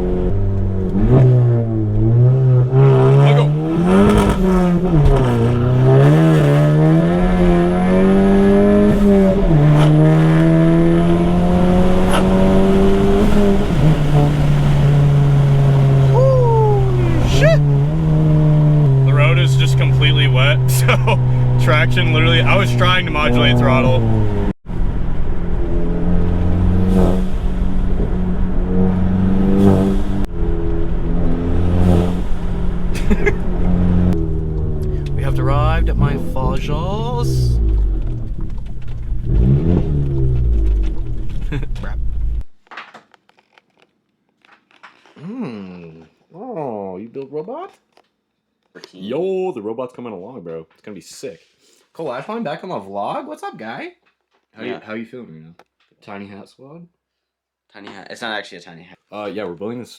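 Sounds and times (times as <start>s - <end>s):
car engine accelerating hard: 0.0s - 42.4s.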